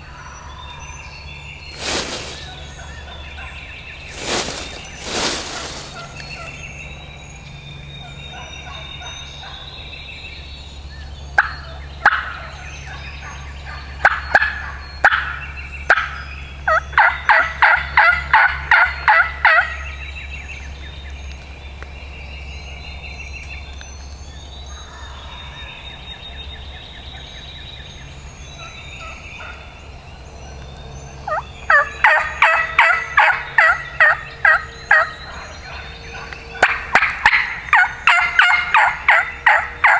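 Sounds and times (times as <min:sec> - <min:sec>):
wild turkey yelping: 0:31.3 - 0:39.9.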